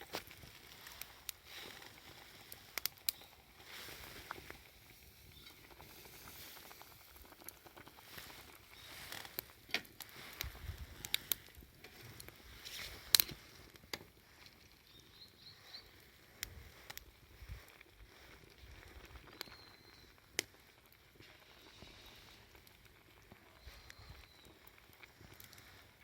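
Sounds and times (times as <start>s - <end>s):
campfire crackling: 0.0s - 26.0s
faint high chirps: 19.3s - 20.2s, 23.4s - 24.6s.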